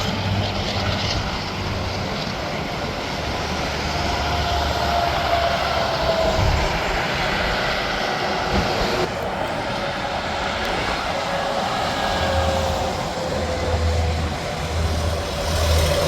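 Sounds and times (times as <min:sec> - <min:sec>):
highway traffic rushing: 0:00.0 - 0:16.0.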